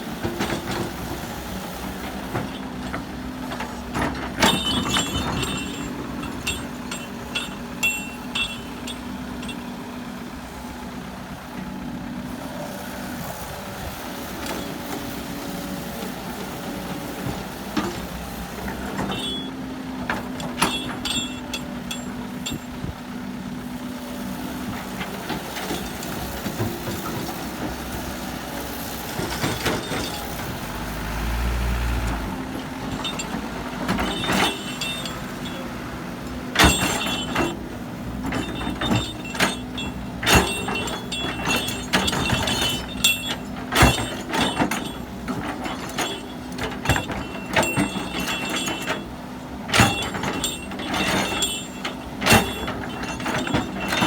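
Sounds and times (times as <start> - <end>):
diesel machinery running: 0.0 - 54.0
metallic clanks and knocks: 1.9 - 9.9, 17.2 - 22.9, 32.4 - 54.0.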